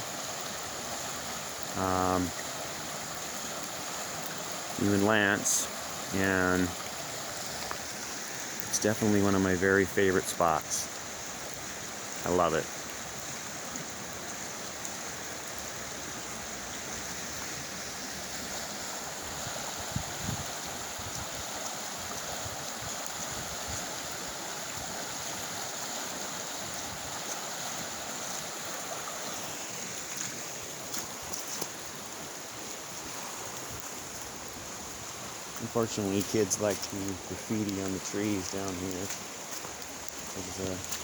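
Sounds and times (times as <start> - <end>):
creek water rushing and splashing: 0.0 - 41.0.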